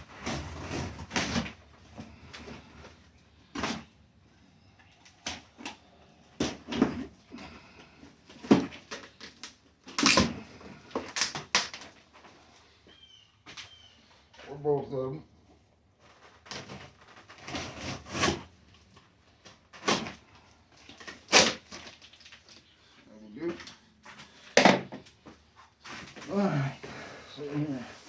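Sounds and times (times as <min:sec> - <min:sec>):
cardboard box scraping and rustling: 0:00.0 - 0:01.6, 0:16.2 - 0:18.6.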